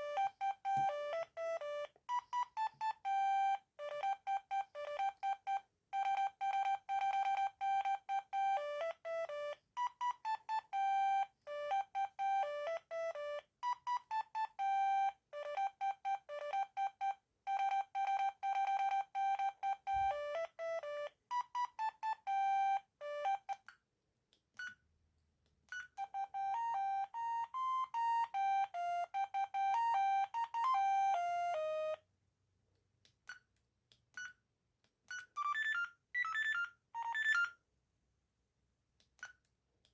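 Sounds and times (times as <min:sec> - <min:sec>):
mobile phone ringtone melody: 0:26.0 - 0:32.0, 0:35.4 - 0:37.6
short keypad beeps: 0:35.1 - 0:37.6.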